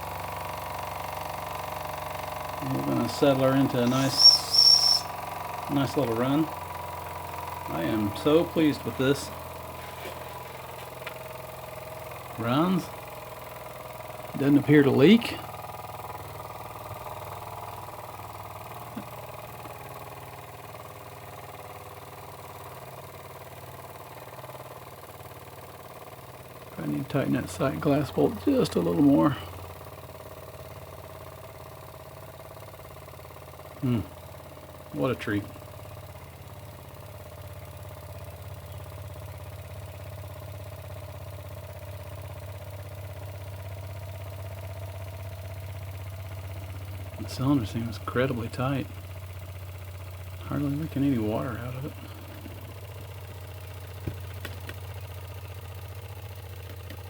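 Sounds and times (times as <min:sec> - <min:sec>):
steam engine running: 0:00.0 - 0:20.9, 0:49.8 - 0:57.0.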